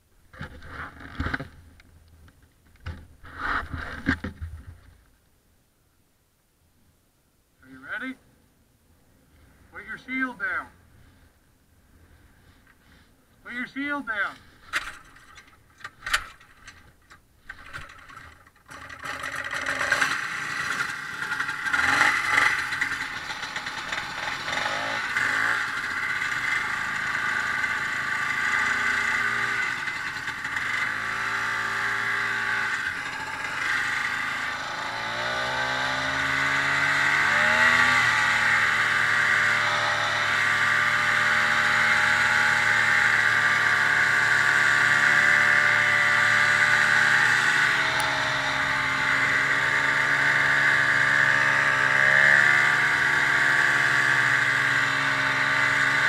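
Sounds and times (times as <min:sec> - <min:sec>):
snowmobile engine revving: 0:17.5 - 0:56.0.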